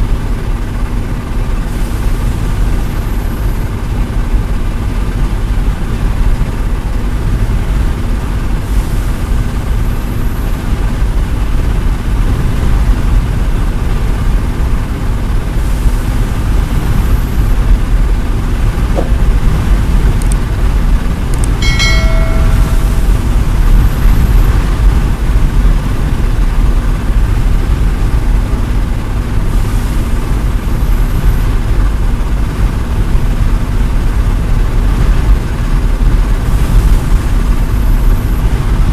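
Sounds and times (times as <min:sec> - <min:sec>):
truck engine low rumble: 0:00.0 - 0:38.9
short pitched beep: 0:21.5 - 0:23.4.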